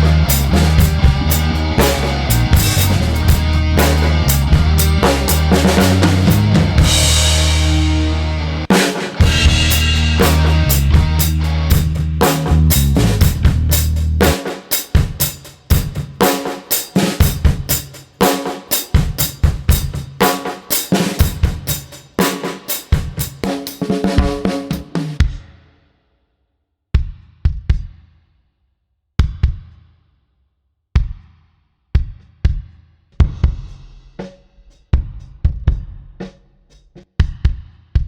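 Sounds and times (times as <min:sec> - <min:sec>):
held low notes: 0:00.0 - 0:14.2
drum kit groove: 0:00.0 - 0:25.7, 0:27.0 - 0:28.2, 0:29.2 - 0:29.9, 0:32.0 - 0:38.0.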